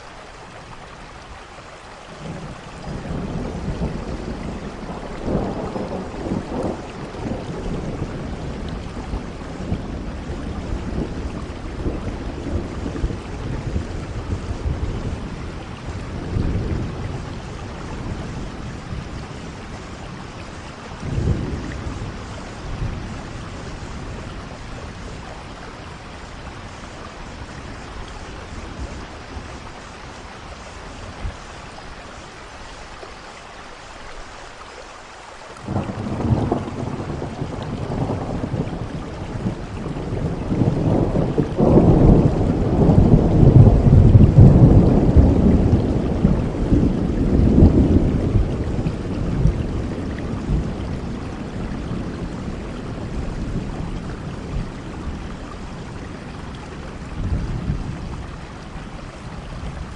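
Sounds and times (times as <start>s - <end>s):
steady rain falling: 0.0s - 59.9s
thunder rumbling: 2.1s - 32.3s, 35.6s - 59.9s.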